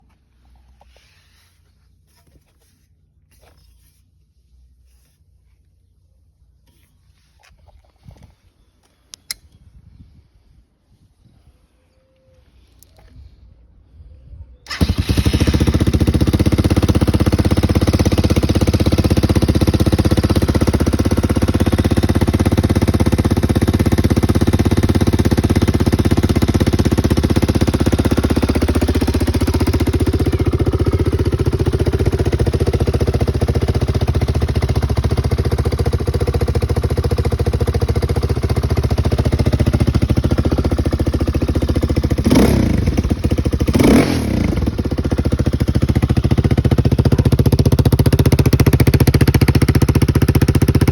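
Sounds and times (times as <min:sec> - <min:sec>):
motorcycle engine idling: 0:14.6 - 0:50.9.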